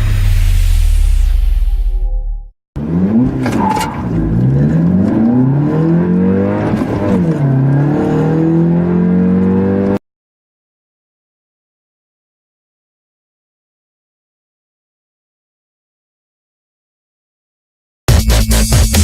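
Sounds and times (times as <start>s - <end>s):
car engines accelerating: 2.8s - 10.0s.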